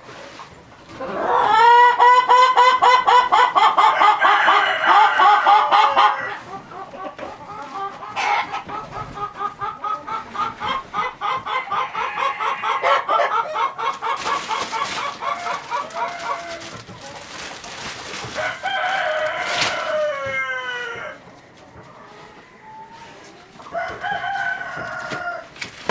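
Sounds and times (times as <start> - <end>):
chickens clucking: 0.0 - 25.9
rooster crowing: 3.8 - 6.4, 18.4 - 21.2, 23.7 - 25.4.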